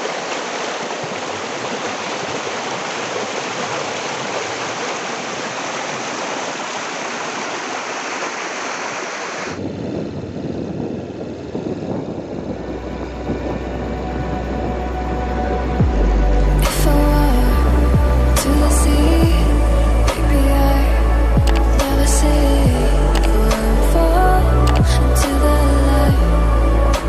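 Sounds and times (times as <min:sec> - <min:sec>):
waterfall rushing: 0:00.0 - 0:09.6
deep hum: 0:09.6 - 0:27.0
low rumbling: 0:09.6 - 0:27.0.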